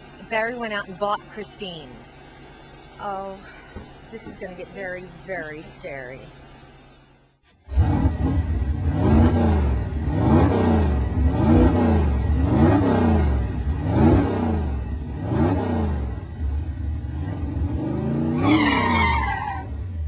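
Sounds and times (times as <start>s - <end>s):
car engine revving: 0.0s - 20.0s
high squeal: 18.3s - 19.7s.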